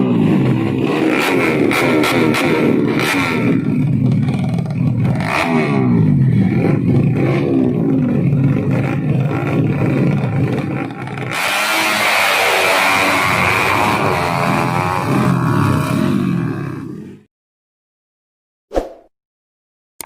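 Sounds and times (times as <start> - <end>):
motorcycle engine revving: 0.0 - 17.3.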